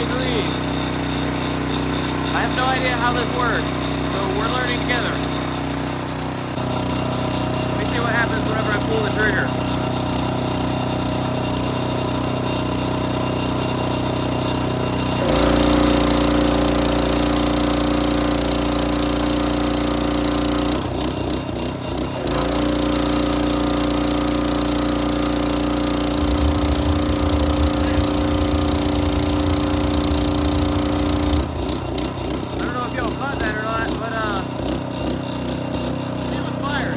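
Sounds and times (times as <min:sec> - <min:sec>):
pressure washer engine running: 0:00.0 - 0:36.9
pulsing low rumble: 0:25.7 - 0:32.8.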